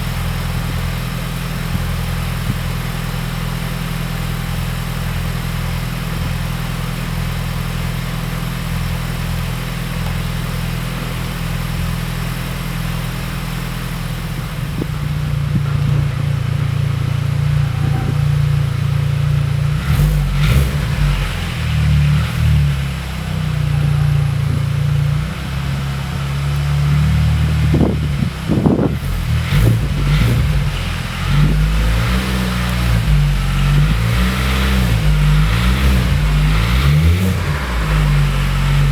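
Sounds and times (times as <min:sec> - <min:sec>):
car engine idling and revving: 0:00.0 - 0:38.9
exhaust pops and crackles: 0:00.0 - 0:38.9.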